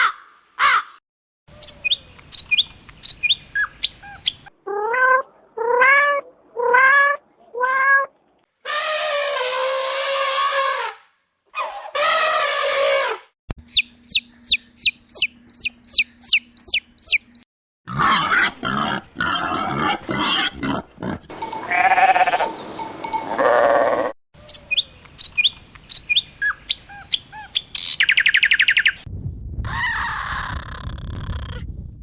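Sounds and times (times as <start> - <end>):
clicks and chirps: 13.6 - 17.5
rapid high chirps: 13.6 - 17.5
livestock bleating: 21.3 - 22.6.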